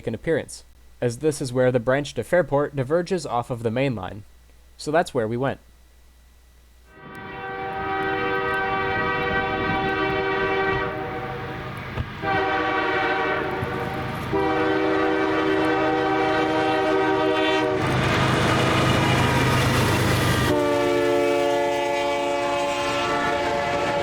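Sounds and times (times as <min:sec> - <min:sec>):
multi-chime locomotive air horn blasts: 0:06.9 - 0:19.3, 0:20.3 - 0:24.0.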